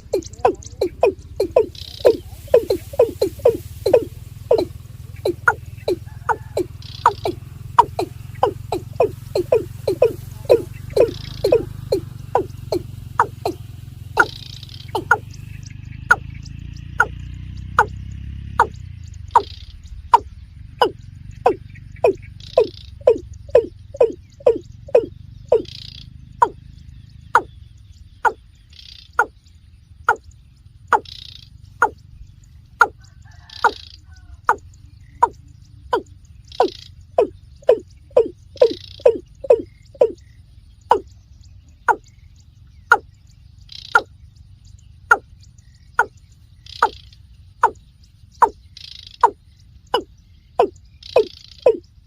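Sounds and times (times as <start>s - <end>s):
bird calling falling notes: 0.0s - 26.6s, 32.8s - 40.2s.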